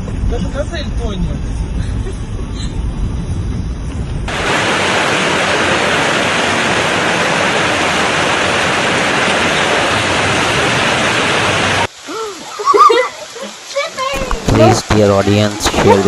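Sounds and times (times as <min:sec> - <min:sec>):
low rumble: 0:00.0 - 0:11.9
fast-flowing water rushing: 0:04.3 - 0:16.0.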